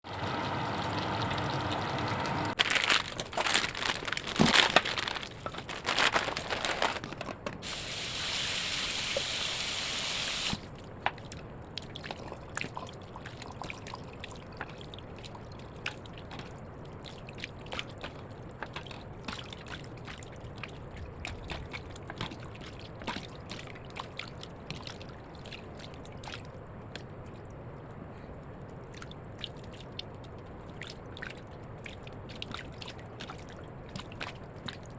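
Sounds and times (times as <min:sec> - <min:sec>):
running water pouring: 0:00.1 - 0:07.0
faint crackles: 0:02.6 - 0:07.6.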